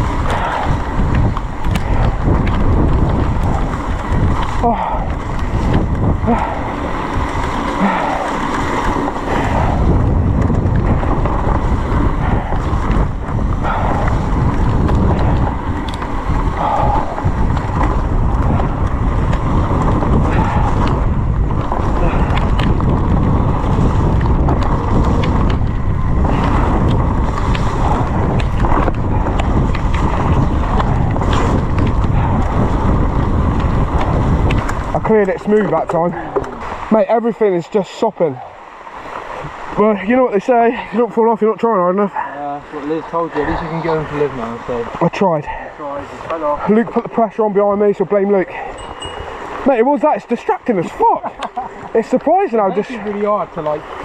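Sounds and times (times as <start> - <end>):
heavy rain: 0.0 - 35.4
bike knocks and rattles: 0.0 - 36.7
tyre noise: 0.0 - 37.0
wind rumbling on microphone: 0.0 - 54.0.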